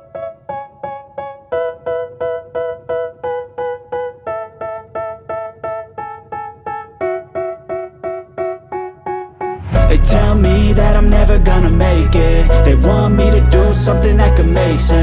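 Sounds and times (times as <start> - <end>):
electric piano chords: 0.0 - 15.0.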